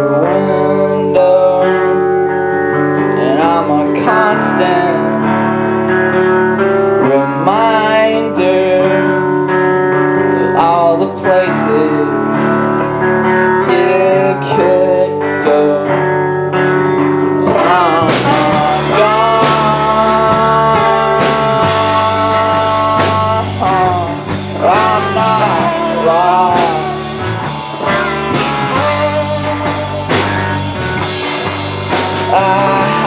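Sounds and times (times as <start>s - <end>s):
bending lead melody: 0.0s - 33.0s
guitars: 0.0s - 33.0s
live rock band playing: 0.0s - 33.0s
drum kit: 17.4s - 33.0s.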